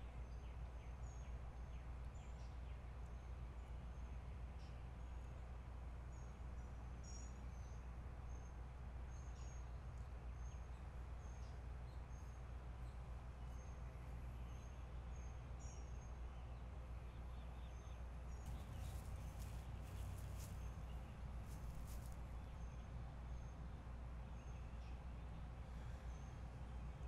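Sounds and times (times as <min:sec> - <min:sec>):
bird chirping: 0:17.3 - 0:22.6.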